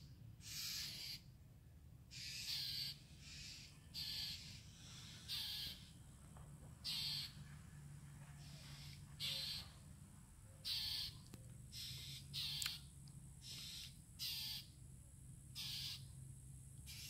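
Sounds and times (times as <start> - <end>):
harsh bird alarm calls: 0.4 - 1.4, 2.1 - 6.1, 6.8 - 7.4, 8.4 - 9.9, 10.5 - 14.8, 15.5 - 16.2, 16.8 - 17.0.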